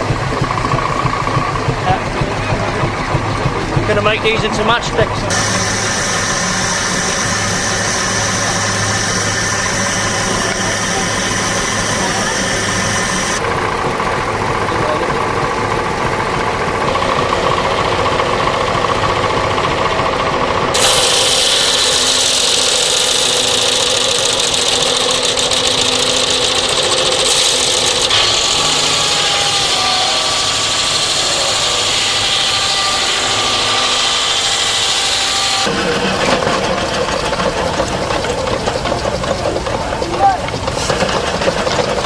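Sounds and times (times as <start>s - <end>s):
engine-driven saw running: 0.0s - 42.0s
high-pitched sawing into wood: 3.8s - 13.4s, 20.7s - 38.5s.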